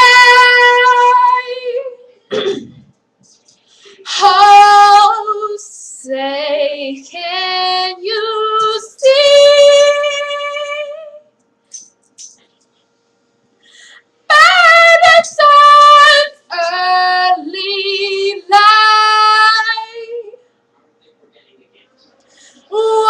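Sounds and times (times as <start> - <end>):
young woman singing a cappella: 0.0 - 2.1, 4.0 - 11.2, 14.3 - 20.4, 22.7 - 23.0.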